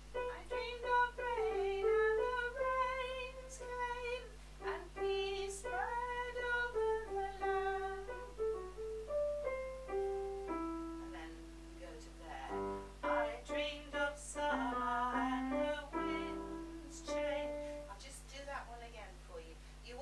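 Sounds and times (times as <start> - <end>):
alto voice singing: 0.1 - 8.5, 10.5 - 18.0.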